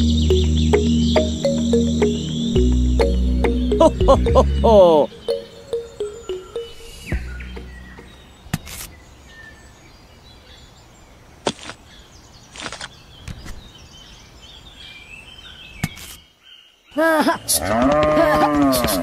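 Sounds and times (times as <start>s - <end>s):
swooping cartoon sound effect: 0.0s - 7.7s.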